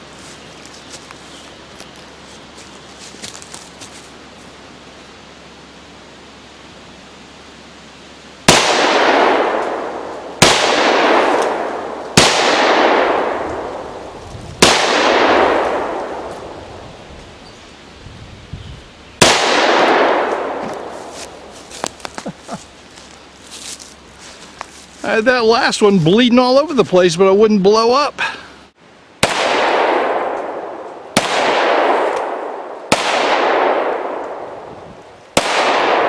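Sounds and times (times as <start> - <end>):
pistol shots with echo: 8.5 - 13.7, 14.6 - 16.3, 19.2 - 20.6, 29.2 - 34.4, 35.4 - 36.0.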